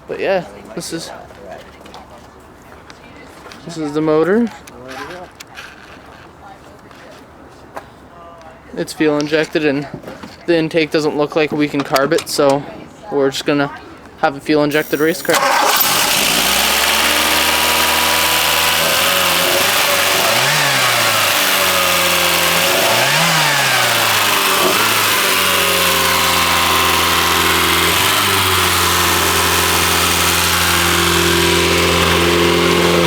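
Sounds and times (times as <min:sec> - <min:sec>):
car engine idling and revving: 0:14.8 - 0:33.0.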